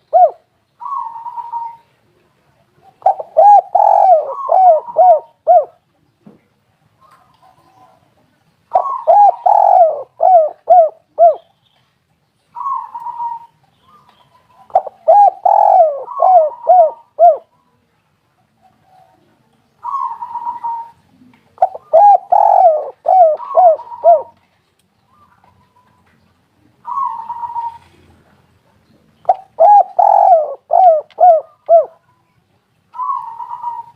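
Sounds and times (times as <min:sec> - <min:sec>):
dove cooing: 0:00.0 - 0:05.8, 0:08.7 - 0:11.5, 0:12.6 - 0:17.5, 0:18.6 - 0:24.4, 0:26.7 - 0:28.4, 0:29.2 - 0:32.1, 0:32.9 - 0:33.9.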